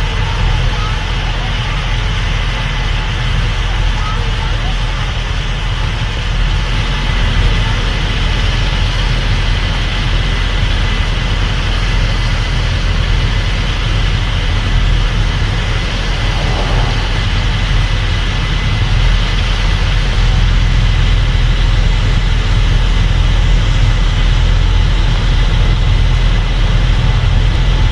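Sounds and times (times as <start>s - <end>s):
combine harvester engine drone: 0.0s - 27.9s
thin steady whine: 13.6s - 19.0s.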